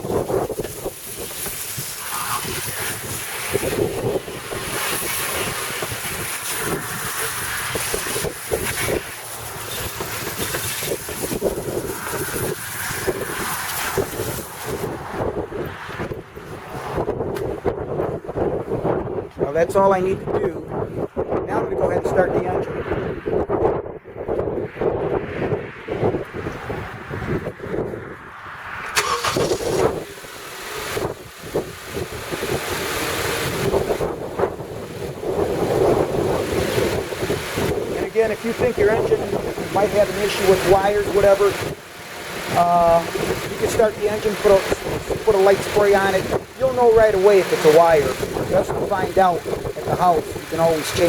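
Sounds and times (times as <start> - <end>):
garden hose spraying water: 0.0 - 15.1, 29.0 - 51.0
car engine running: 0.0 - 18.2, 29.0 - 51.0
wind buffeting microphone: 0.0 - 51.0.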